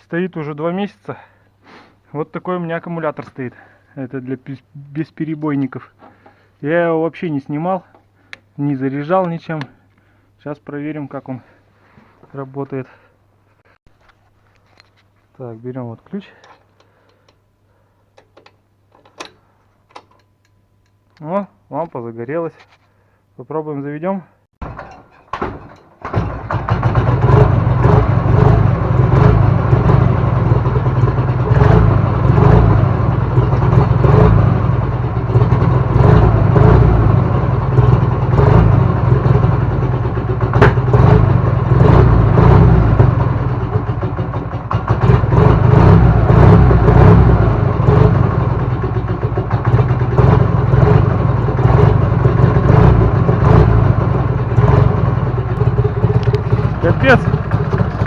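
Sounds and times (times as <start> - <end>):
motorcycle engine starting and running: 24.6 - 58.0.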